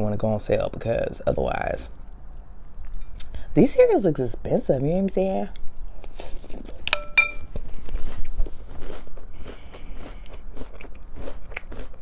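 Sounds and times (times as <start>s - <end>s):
person chewing crunchy cereal: 5.8s - 12.0s.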